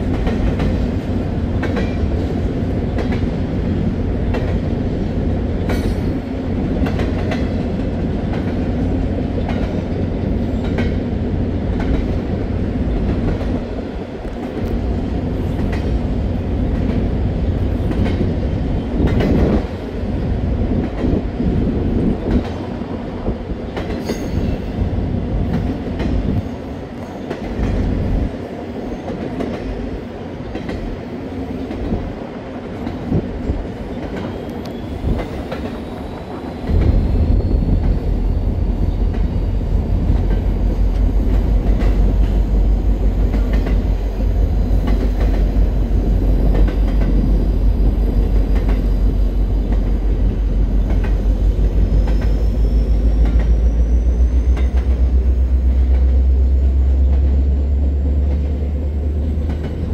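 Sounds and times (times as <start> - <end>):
heavy low train rumble: 0.0 - 59.9
wheels clicking over rail joints: 58.2 - 59.9.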